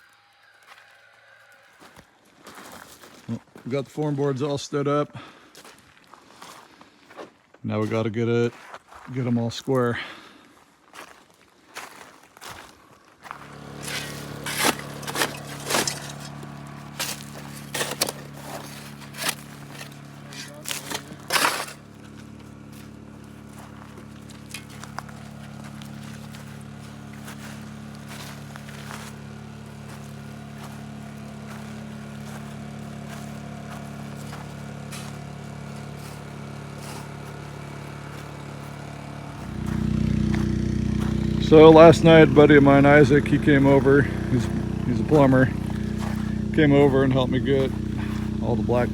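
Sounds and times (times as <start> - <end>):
engine running steadily: 13.2 - 48.9
machine hum: 13.2 - 48.9
short scrapes and knocks: 13.5 - 22.2.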